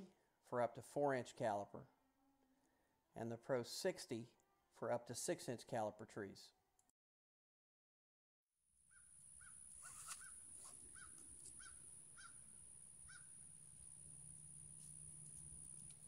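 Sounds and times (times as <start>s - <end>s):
bird calling faintly: 8.9s - 13.4s.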